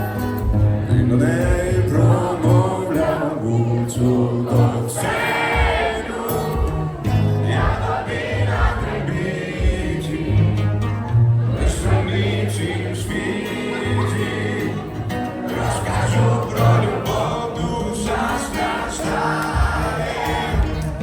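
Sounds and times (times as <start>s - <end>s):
song with singing and choir: 0.0s - 21.0s
steady bass beat: 4.6s - 12.8s.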